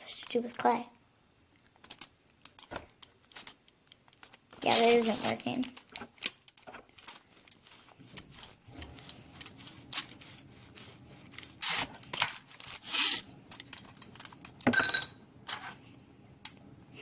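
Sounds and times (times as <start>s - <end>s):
foil crinkling: 1.6s - 14.7s
hands rubbing clay on foil: 1.8s - 14.6s.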